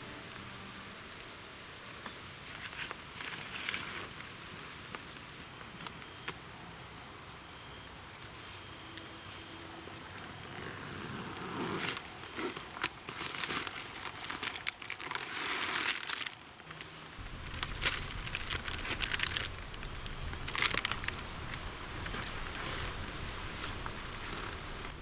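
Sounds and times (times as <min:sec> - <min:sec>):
crinkling and rustling: 0:02.0 - 0:06.4, 0:09.3 - 0:25.0
low rumble: 0:17.2 - 0:24.4.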